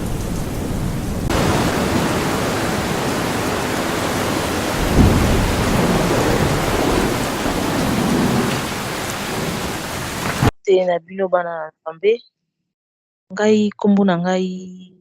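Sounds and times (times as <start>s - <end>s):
heavy rain: 0.0s - 10.5s
thunder rumbling: 0.0s - 10.5s.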